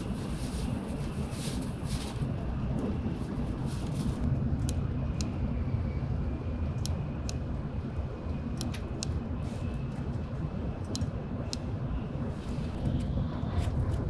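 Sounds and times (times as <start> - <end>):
bullet train low rumble: 0.0 - 14.0
light sharp ticks: 6.8 - 7.4, 10.8 - 11.7.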